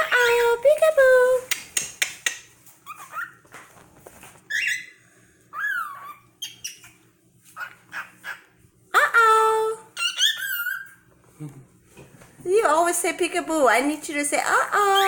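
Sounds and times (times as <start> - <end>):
cockatiel chirping and whistling: 2.8 - 3.4, 4.5 - 7.0, 10.0 - 11.0.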